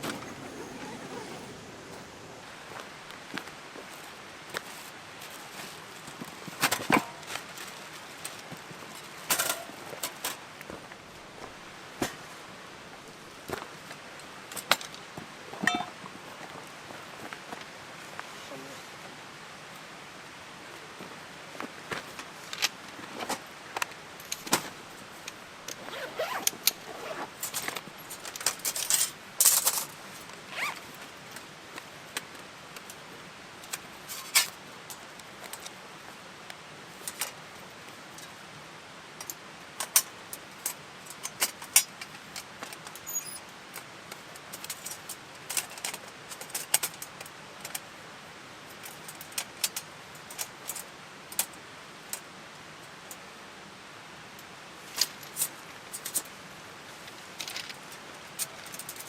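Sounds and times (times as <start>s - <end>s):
gear clinking and rustling: 0.0s - 2.4s, 25.7s - 29.9s
faint steady hiss: 0.0s - 59.0s.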